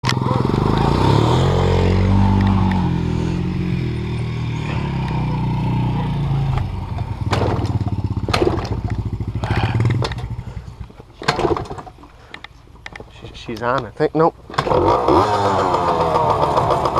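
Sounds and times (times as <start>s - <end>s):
off-road vehicle engine: 0.0s - 16.9s
sharp engine knocks: 6.5s - 13.1s.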